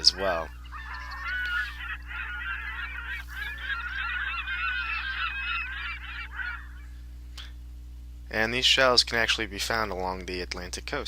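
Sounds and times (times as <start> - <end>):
geese honking: 0.0 - 7.1
low hum: 0.0 - 11.0.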